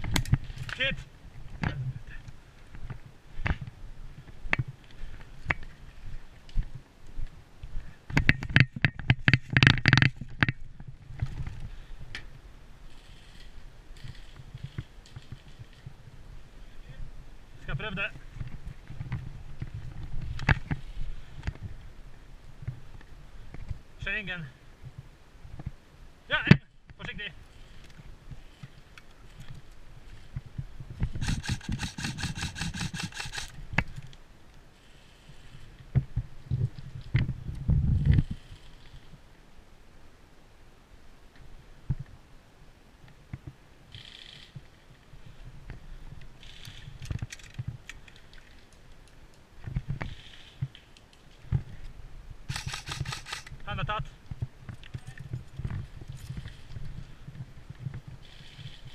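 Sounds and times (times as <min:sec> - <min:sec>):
camera handling rumble: 0:31.0 - 0:34.2, 0:46.4 - 0:53.6
airsoft rifle shots: 0:31.2 - 0:33.5, 0:52.5 - 0:53.6
sharp click: 0:31.2 - 0:33.5, 0:52.5 - 0:53.6.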